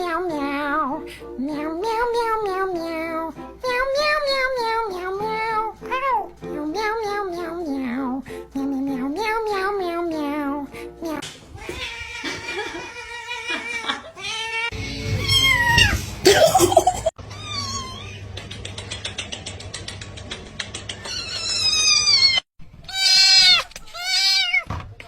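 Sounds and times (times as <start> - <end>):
cats meowing: 11.5 - 18.4, 21.0 - 24.8
rapid train of clicks: 18.4 - 21.1.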